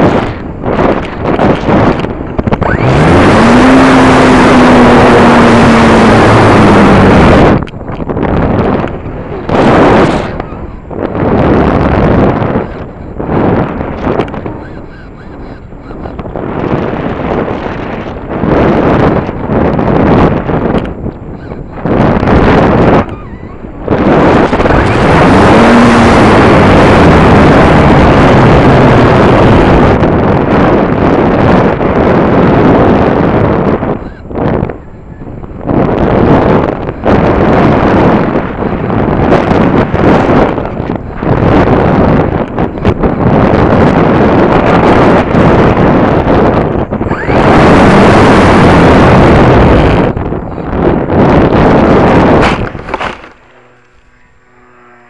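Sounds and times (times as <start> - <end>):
wind rushing over microphone: 0.0 - 55.0
model plane engine: 2.4 - 7.8.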